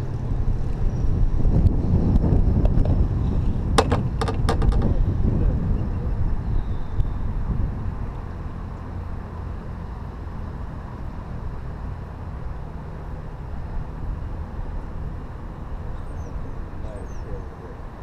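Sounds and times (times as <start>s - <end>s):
wind noise on microphone: 0.0s - 9.3s
engine rumbling: 0.0s - 18.0s.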